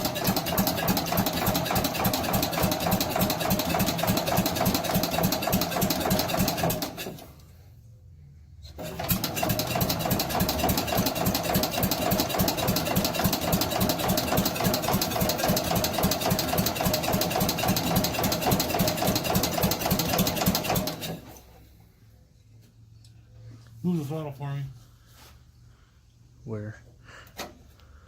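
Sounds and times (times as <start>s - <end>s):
engine cranking on starter: 0.0s - 7.5s, 8.7s - 21.6s.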